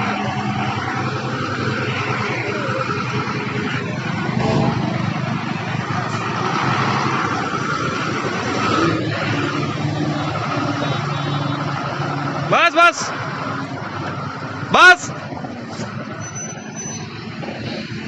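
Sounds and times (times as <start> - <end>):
truck diesel engine droning: 0.0 - 18.0.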